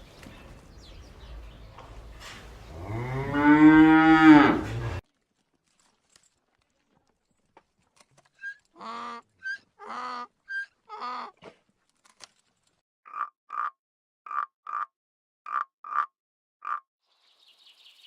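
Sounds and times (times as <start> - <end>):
animal calls: 8.3 - 11.4.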